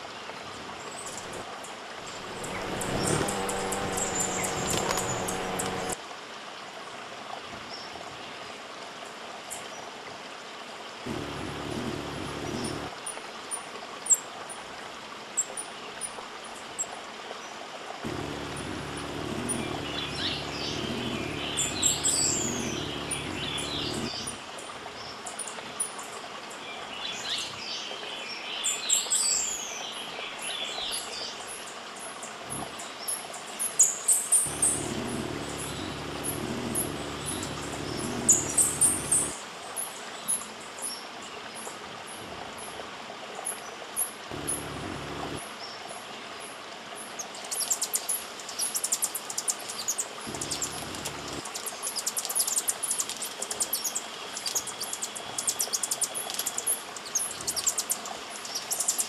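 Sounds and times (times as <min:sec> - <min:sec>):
wild birds chirping: 0:00.0 - 0:06.0, 0:11.0 - 0:13.0, 0:17.4 - 0:26.0, 0:26.7 - 0:46.4, 0:47.0 - 0:59.0
background hiss: 0:00.6 - 0:06.0, 0:18.0 - 0:25.6
low hum: 0:02.1 - 0:06.0, 0:11.1 - 0:12.9, 0:18.1 - 0:24.4, 0:34.5 - 0:39.4, 0:44.3 - 0:45.4, 0:50.3 - 0:51.5.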